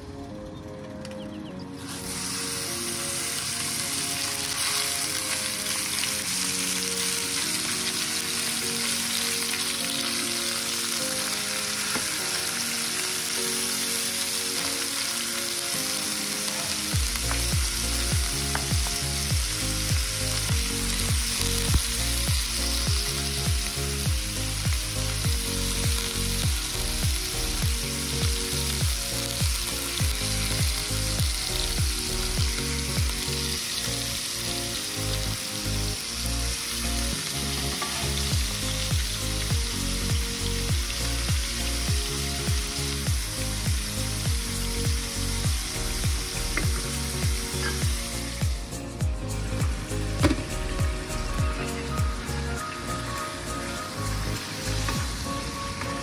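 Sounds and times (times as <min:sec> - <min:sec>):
background music: 0:00.0 - 0:56.0
meat sizzling in a frying pan: 0:01.8 - 0:56.0
steady beat: 0:17.0 - 0:33.2, 0:38.3 - 0:53.2.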